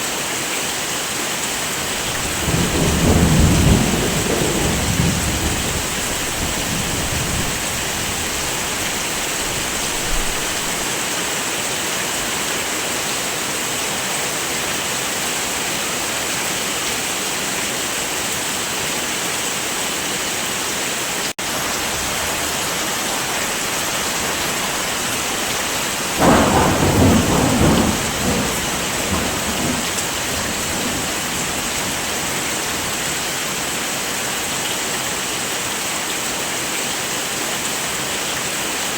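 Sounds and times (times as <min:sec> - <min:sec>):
heavy rain hissing: 0:00.0 - 0:38.9
thunder clap rumbling: 0:01.8 - 0:10.8, 0:22.0 - 0:33.0.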